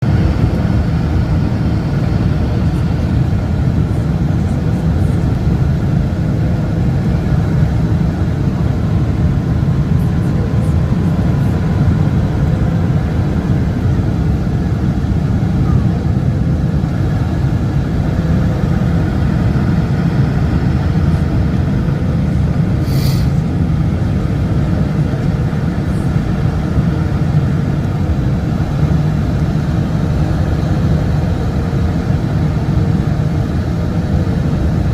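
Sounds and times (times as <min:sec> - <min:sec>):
jet engines droning: 0:00.0 - 0:34.9
rushing air: 0:00.0 - 0:34.9.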